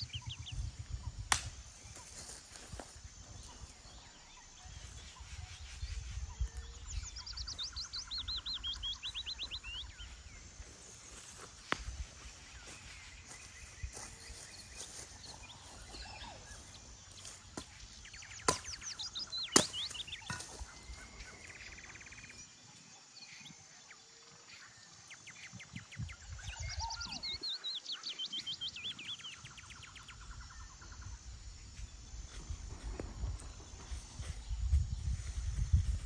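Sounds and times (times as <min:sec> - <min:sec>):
small birds chirping: 0:00.0 - 0:36.0
bird trill: 0:12.6 - 0:22.6.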